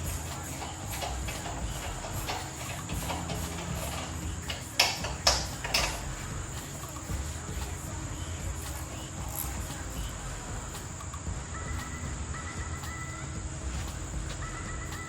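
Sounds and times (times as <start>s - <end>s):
steady hum and hiss: 0.0s - 15.0s.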